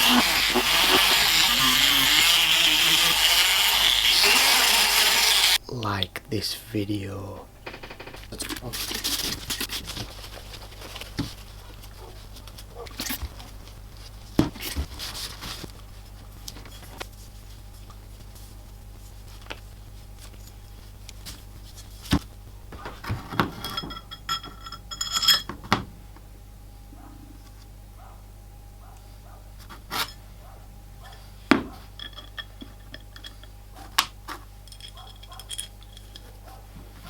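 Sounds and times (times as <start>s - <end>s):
low hum: 7.4s - 31.2s
metal being handled: 34.3s - 36.4s.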